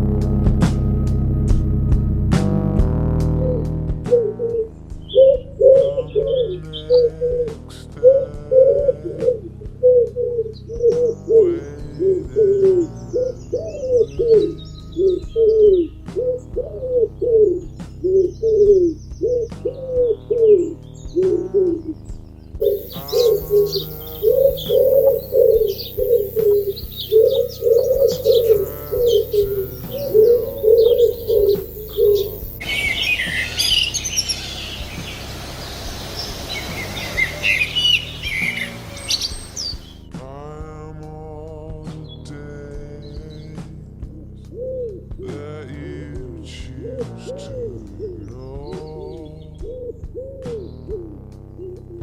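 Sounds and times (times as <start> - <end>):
pigeons cooing: 3.4 - 22.0, 22.6 - 40.0, 44.6 - 45.0, 46.8 - 48.3, 49.2 - 52.0
small birds chirping: 10.5 - 40.3, 47.3 - 50.9
steady hiss: 22.6 - 40.0.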